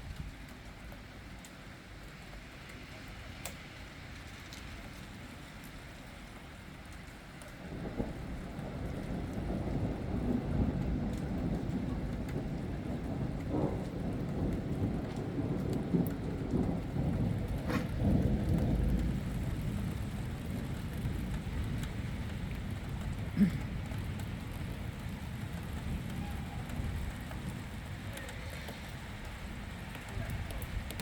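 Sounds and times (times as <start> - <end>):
steady rain: 0.0 - 31.0
thunder rumbling: 7.7 - 31.0.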